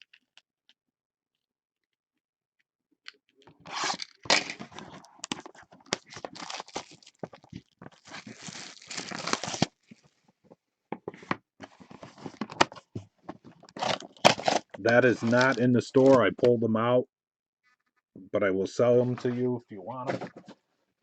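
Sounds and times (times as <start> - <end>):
plastic wrapping tearing and crinkling: 3.7 - 10.0, 13.7 - 16.2.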